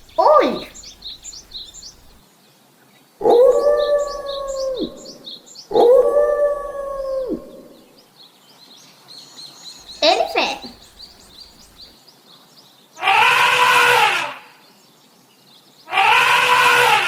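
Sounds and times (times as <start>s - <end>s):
faint birds chirping: 0.0s - 2.2s, 9.8s - 11.9s.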